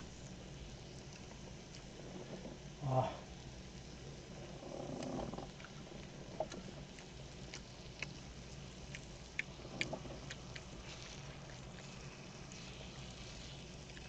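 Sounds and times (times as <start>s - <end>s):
fat popping and spitting: 8.9s - 12.9s
meat sizzling in a pan: 10.4s - 14.0s.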